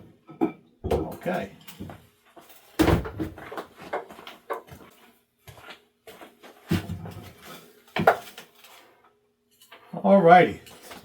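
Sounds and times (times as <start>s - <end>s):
tools clattering on workbench: 6.7s - 8.9s, 10.6s - 11.0s.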